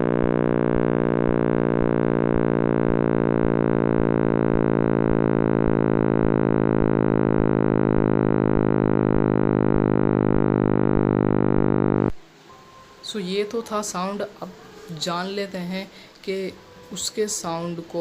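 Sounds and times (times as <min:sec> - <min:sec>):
electronic drone: 0:00.0 - 0:12.2
low electronic pulse: 0:00.0 - 0:12.3.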